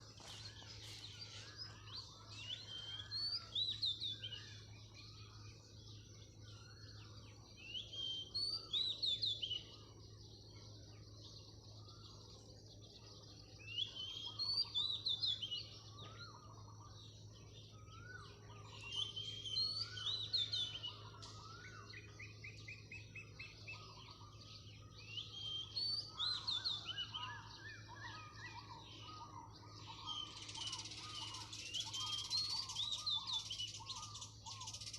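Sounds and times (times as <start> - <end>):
bird trill: 0.0 - 34.9
birds calling softly: 0.0 - 34.9.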